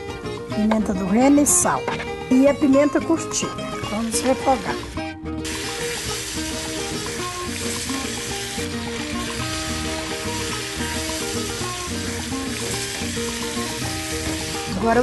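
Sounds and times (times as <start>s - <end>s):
background music sustained notes: 0.0s - 15.0s
meat sizzling in hot oil: 3.9s - 15.0s.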